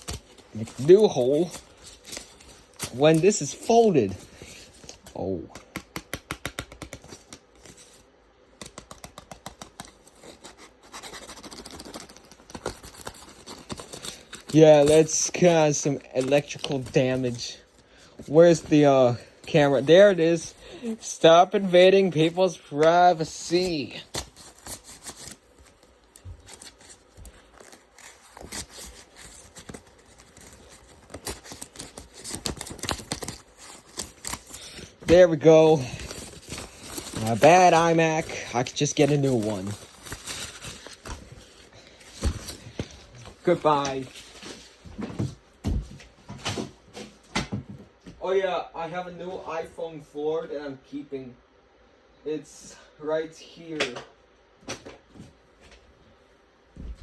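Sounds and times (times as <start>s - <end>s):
paper tearing and scraping: 0.0s - 5.3s, 9.5s - 17.7s, 18.3s - 44.7s.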